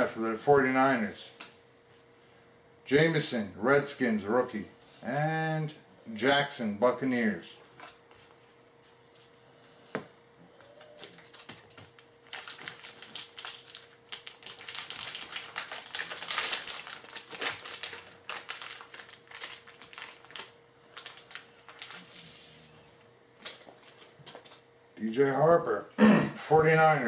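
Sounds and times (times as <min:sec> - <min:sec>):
cards and packaging crackling: 0:10.7 - 0:22.6.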